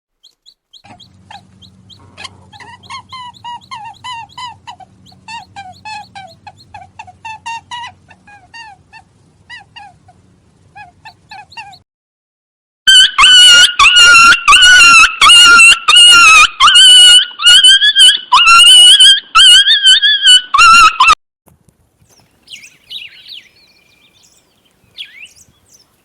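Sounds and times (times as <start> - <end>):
steady low hum: 0.7 - 11.8
animal high-pitched yips: 0.8 - 11.8, 12.9 - 21.2.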